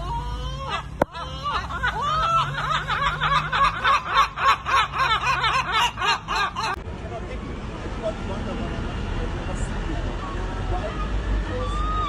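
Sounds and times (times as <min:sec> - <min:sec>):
gull yelping call: 0:10.2 - 0:12.0.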